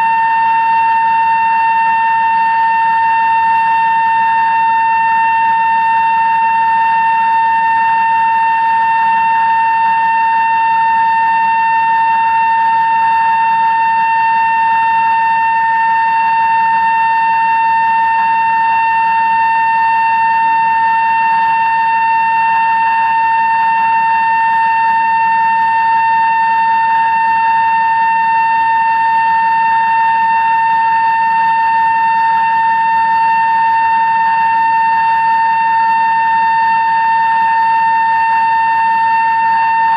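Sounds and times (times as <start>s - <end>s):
drill cutting steel high whine: 0.0s - 39.9s.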